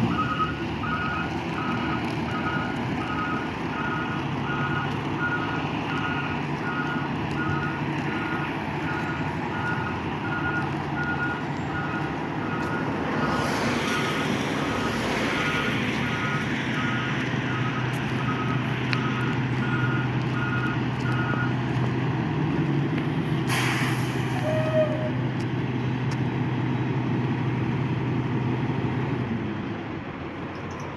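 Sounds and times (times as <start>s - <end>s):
reversing alarm beeping: 0.0s - 14.3s, 15.3s - 21.6s
diesel engine running: 0.0s - 30.9s
air brakes hissing: 23.4s - 25.2s.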